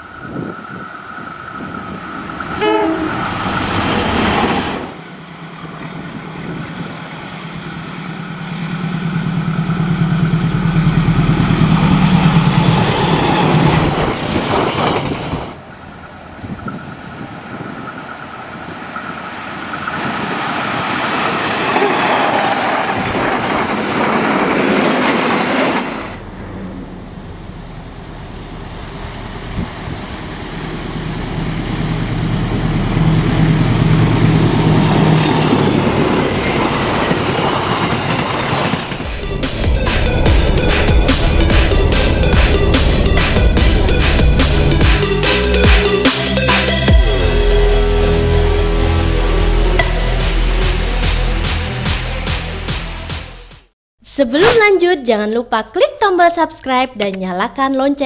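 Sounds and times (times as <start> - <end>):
locomotive engine drone: 0.0 - 24.5, 25.1 - 53.5
train coaches rumbling over rails: 0.0 - 53.4
train horn: 2.5 - 3.8, 46.9 - 52.2.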